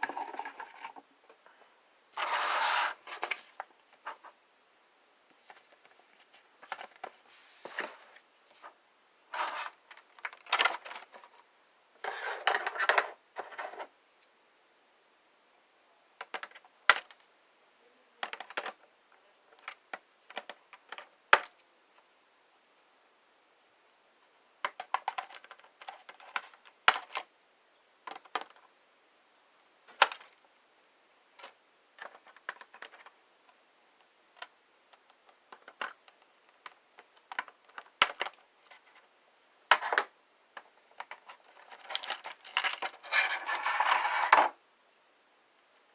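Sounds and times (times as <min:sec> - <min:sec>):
packaging rustling and scraping: 0:00.0 - 0:01.0, 0:02.2 - 0:04.3, 0:05.4 - 0:09.8, 0:41.1 - 0:44.5.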